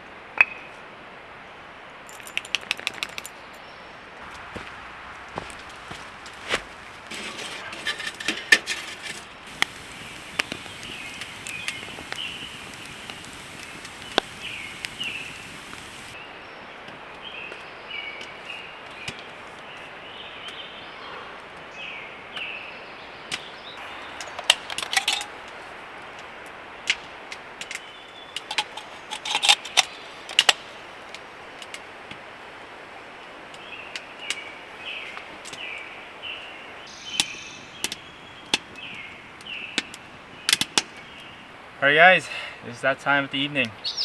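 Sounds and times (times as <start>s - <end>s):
bird chirping: 9.3s - 16.6s, 36.3s - 41.5s, 43.6s - 44.0s
wood snapping and clicking: 9.5s - 16.2s.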